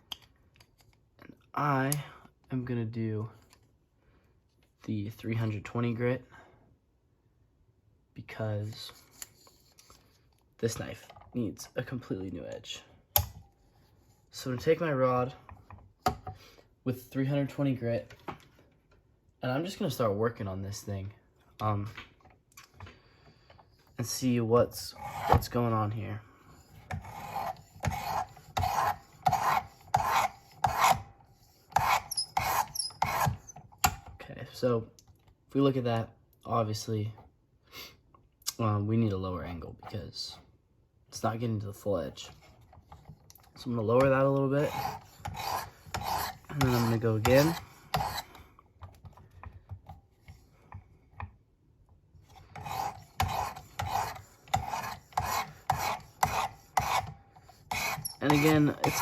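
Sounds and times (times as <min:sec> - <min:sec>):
sharpening rod stroking knife edge: 0:27.0 - 0:31.0, 0:31.7 - 0:33.4, 0:44.7 - 0:48.3, 0:52.6 - 0:59.0.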